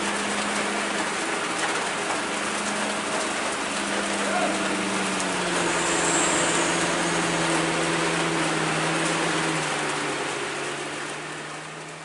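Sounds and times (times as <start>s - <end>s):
rain hissing: 0.0s - 12.0s
truck engine humming: 0.0s - 12.0s.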